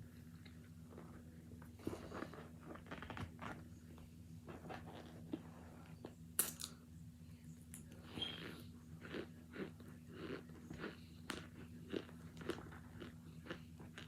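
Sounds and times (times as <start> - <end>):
faint steady hum: 0.0 - 14.0
chewing and crunching: 8.0 - 14.0.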